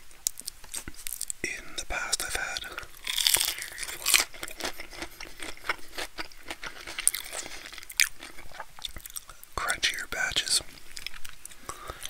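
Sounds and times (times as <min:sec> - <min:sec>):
crisp crunches of chewing: 0:00.2 - 0:01.4, 0:02.3 - 0:09.7.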